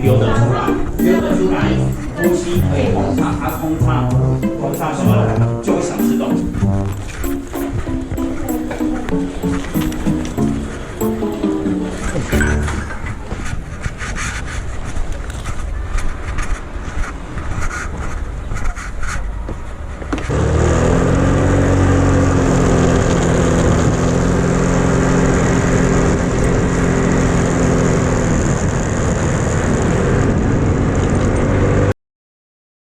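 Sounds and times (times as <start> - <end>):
vehicle engine hum: 20.3 - 31.5.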